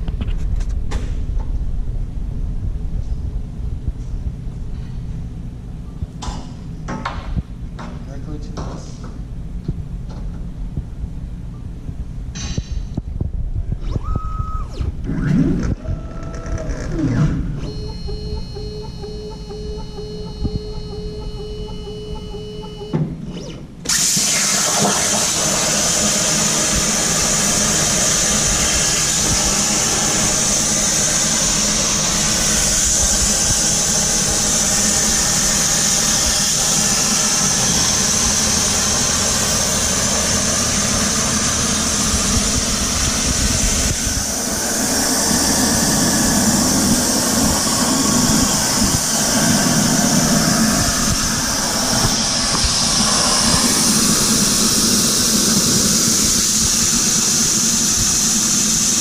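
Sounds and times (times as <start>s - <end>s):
low hum: 9.3s - 23.9s, 26.7s - 57.1s
plasma cutter hissing: 23.9s - 59.0s.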